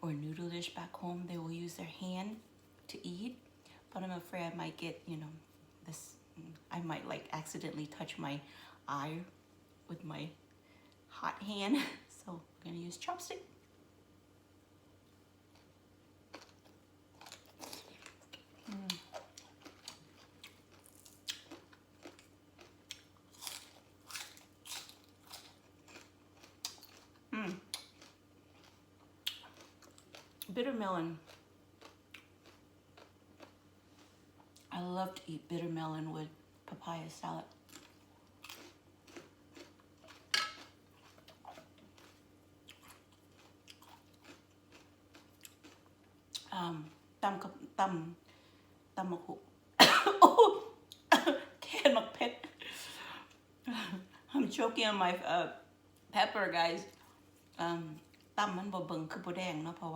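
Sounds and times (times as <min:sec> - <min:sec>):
crunching and chewing food: 0:15.0 - 0:34.8, 0:37.4 - 0:47.1, 0:56.8 - 0:58.4.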